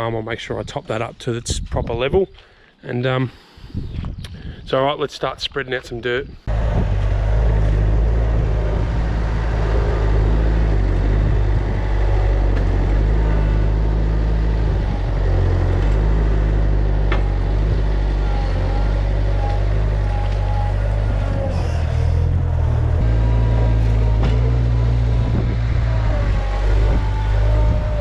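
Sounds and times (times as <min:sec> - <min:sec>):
skid steer diesel engine under load: 0:06.4 - 0:28.0.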